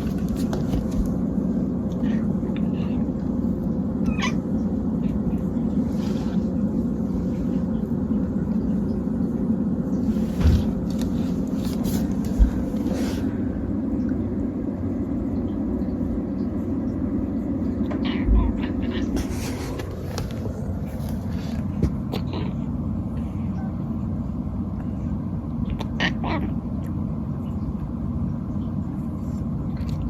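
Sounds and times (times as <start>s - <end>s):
low steady hum: 0.0s - 30.0s
cat squeaking: 4.0s - 5.2s.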